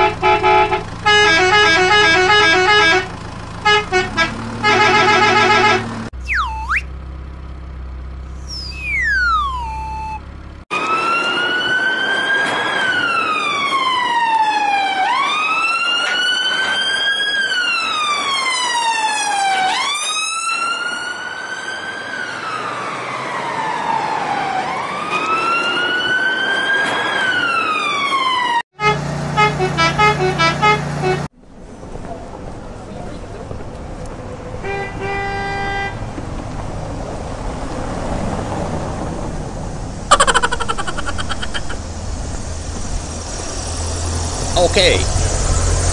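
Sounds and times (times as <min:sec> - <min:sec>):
falling whistle-like glides: 0:06.2 - 0:06.9, 0:08.4 - 0:10.2
tooting run of tones: 0:06.2 - 0:06.9, 0:08.4 - 0:10.2
low hum: 0:08.3 - 0:10.4
wailing siren: 0:08.5 - 0:31.3.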